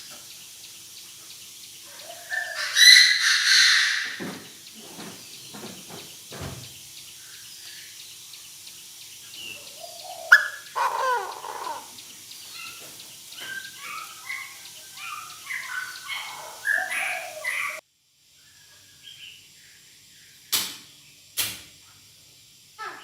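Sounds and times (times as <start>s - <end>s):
francolin calling harshly: 0.0s - 17.8s, 22.8s - 23.0s.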